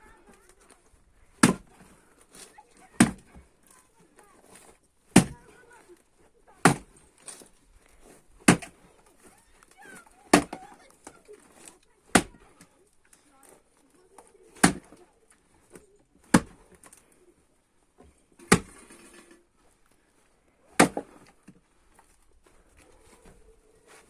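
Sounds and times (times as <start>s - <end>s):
maul chopping logs: 0.2s - 12.7s, 13.4s - 17.0s, 18.4s - 19.4s, 20.7s - 22.6s.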